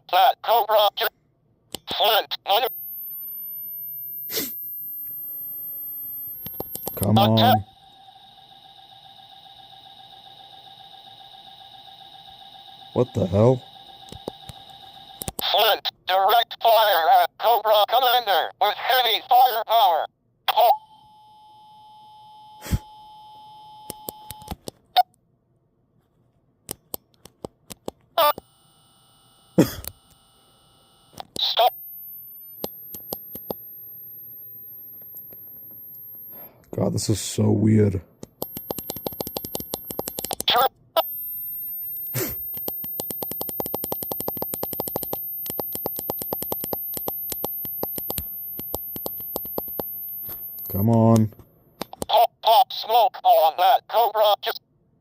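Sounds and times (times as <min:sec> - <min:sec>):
electronic beep tone: 0:02.1 - 0:15.2, 0:38.3 - 0:51.0
crackling clicks: 0:03.0 - 0:07.2, 0:10.0 - 0:15.5, 0:32.5 - 0:33.7, 0:34.9 - 0:36.8, 0:38.2 - 0:52.1
toy speaker clicks: 0:06.4 - 0:07.1, 0:14.0 - 0:15.5, 0:26.7 - 0:28.4, 0:32.6 - 0:33.6, 0:38.2 - 0:41.1, 0:42.2 - 0:49.9, 0:51.8 - 0:52.2.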